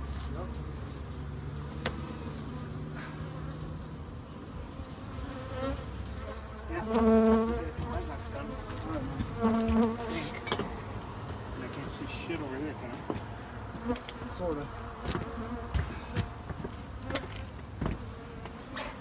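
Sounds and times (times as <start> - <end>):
bees buzzing: 0.5 - 19.0
single bee flying past: 0.9 - 4.0, 4.6 - 10.8, 13.6 - 19.0.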